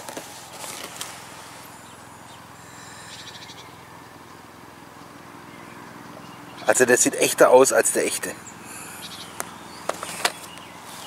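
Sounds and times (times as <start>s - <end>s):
faint bird chirps: 1.8s - 4.4s, 5.1s - 6.8s, 8.4s - 11.0s.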